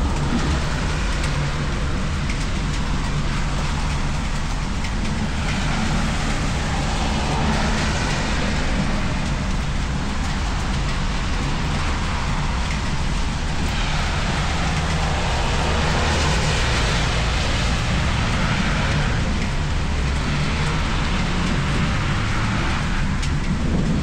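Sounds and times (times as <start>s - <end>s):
low rumble: 0.0s - 24.0s
steady rain falling: 0.0s - 24.0s.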